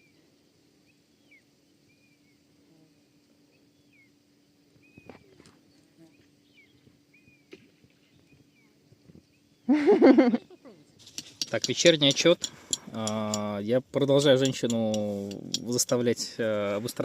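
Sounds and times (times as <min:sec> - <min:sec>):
bird chirping: 0:00.8 - 0:02.5, 0:03.5 - 0:04.2, 0:04.8 - 0:09.7.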